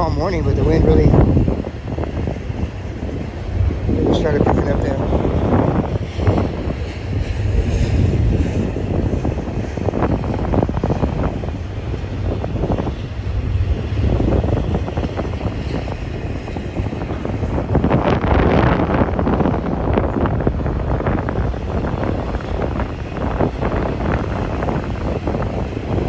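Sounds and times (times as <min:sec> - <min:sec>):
freight train running past: 0:00.0 - 0:26.0
wind buffeting microphone: 0:00.0 - 0:26.0.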